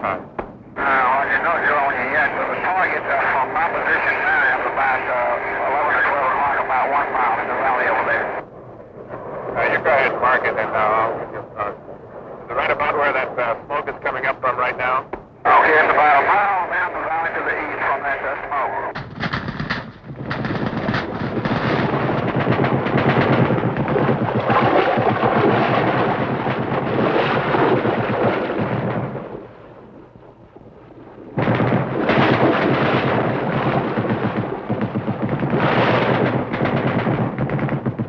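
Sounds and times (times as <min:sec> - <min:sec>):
rapid automatic gunfire: 0:19.0 - 0:29.3, 0:31.4 - 0:38.0.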